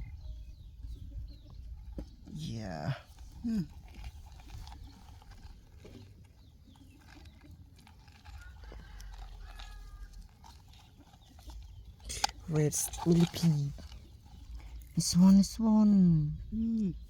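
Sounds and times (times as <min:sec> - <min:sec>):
low rumble on microphone: 0:00.0 - 0:06.5.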